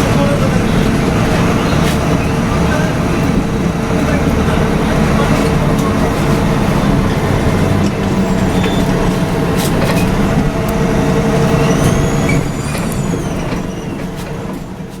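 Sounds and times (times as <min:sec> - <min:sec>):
bus body rattling: 0:00.0 - 0:15.0
bus diesel engine humming: 0:00.0 - 0:15.0.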